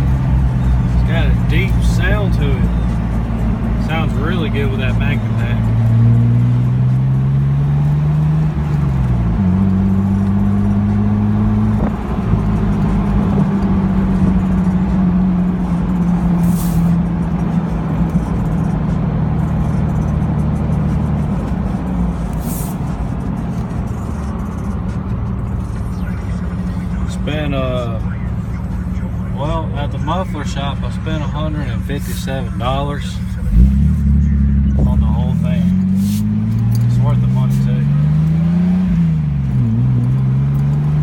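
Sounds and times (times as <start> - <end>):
car exhaust drone while driving: 0.0 - 41.0.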